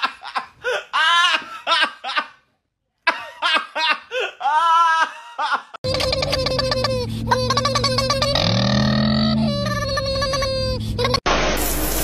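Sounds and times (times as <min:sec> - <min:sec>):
high-pitched laughter: 0:03.2 - 0:11.3.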